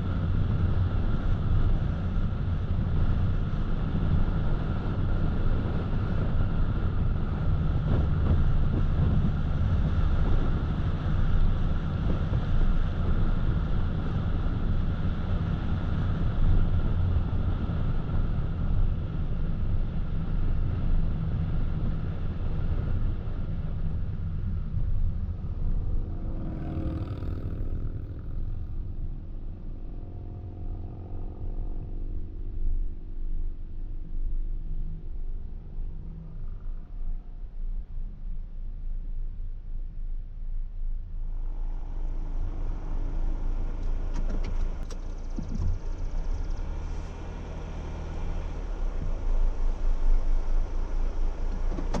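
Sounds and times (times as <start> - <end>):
car tyres and engine rumble: 0.0 - 52.0.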